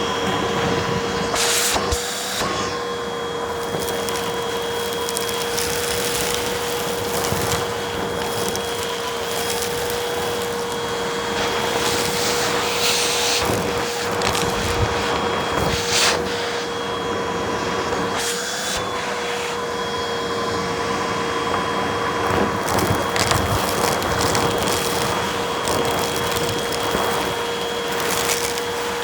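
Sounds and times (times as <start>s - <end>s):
vacuum cleaner running: 0.0s - 29.0s
debris crackling in vacuum: 1.8s - 16.8s, 21.4s - 29.0s.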